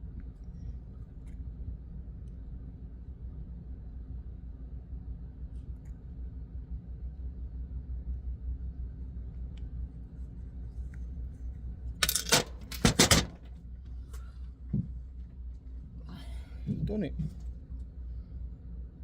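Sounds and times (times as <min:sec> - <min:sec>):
steady low hum: 0:00.0 - 0:19.0
metal tools clinking on metal: 0:12.0 - 0:13.4.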